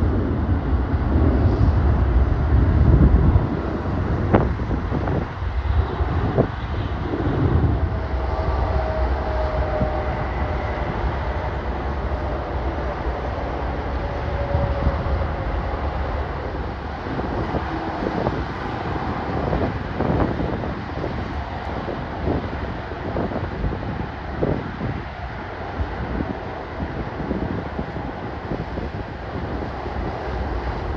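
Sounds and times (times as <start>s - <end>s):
gusting roar: 0.0s - 25.1s
falling jet engine whine: 0.0s - 30.9s
jet engines rumbling: 0.0s - 30.9s.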